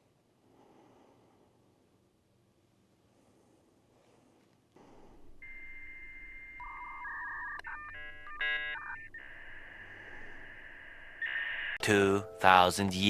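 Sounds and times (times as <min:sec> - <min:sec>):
dial-up modem handshake tones: 0:05.4 - 0:11.8.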